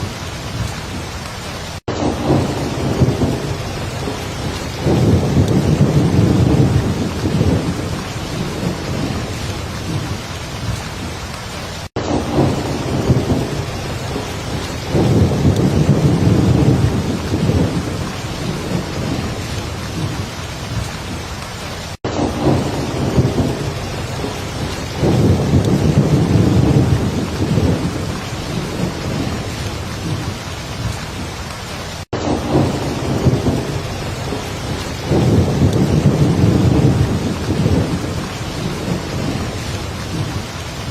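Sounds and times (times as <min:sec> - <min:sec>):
heavy rain falling: 0:00.0 - 0:40.9
low rolls of thunder: 0:01.8 - 0:11.3, 0:12.0 - 0:21.2, 0:22.1 - 0:31.3, 0:32.2 - 0:40.9.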